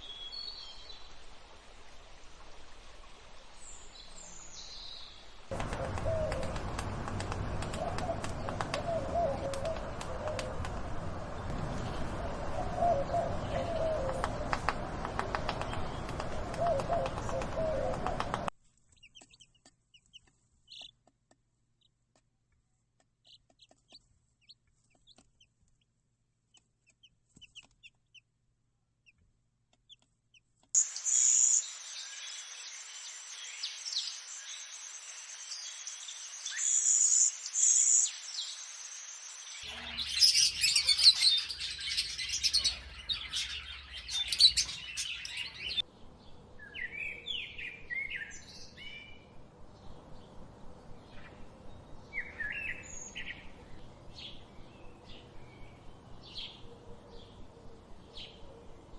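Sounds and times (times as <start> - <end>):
birds chirping and calling: 39.6 - 45.8.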